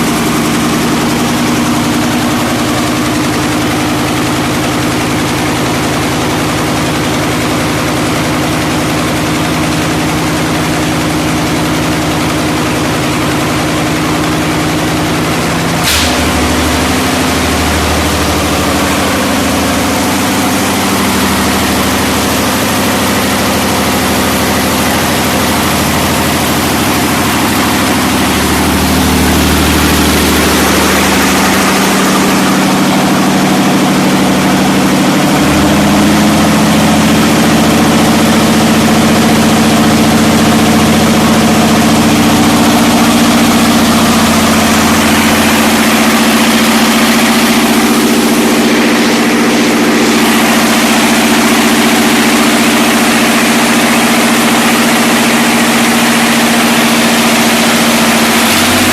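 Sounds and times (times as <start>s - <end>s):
diesel engine idling: 0.0s - 58.9s
sharp click: 15.8s - 16.8s.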